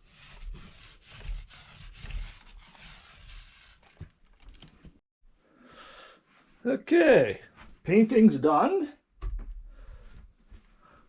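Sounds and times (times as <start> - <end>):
paint roller swishing on wall: 0.0 - 4.2.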